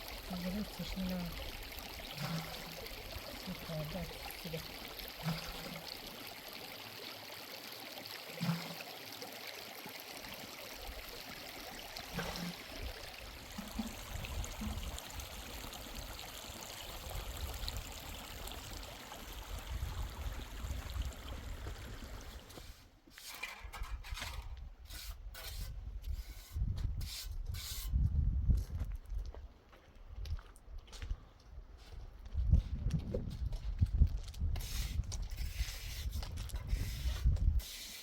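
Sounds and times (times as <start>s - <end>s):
stream water flowing: 0.0s - 22.6s.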